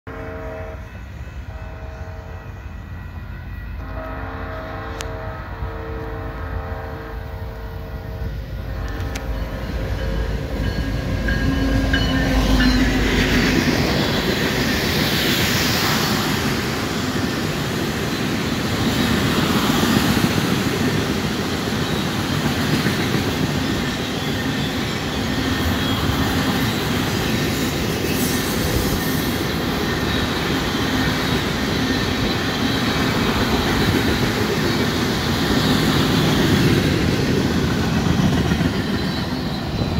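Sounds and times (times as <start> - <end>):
locomotive horn blasts: 0.1 - 9.6
high wheel squeal: 23.5 - 39.9.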